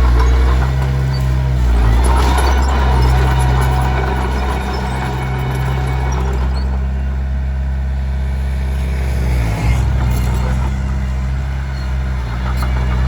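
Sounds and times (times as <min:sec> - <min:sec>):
rough clattering: 0:00.0 - 0:07.4
bulldozer diesel engine running: 0:00.0 - 0:13.0.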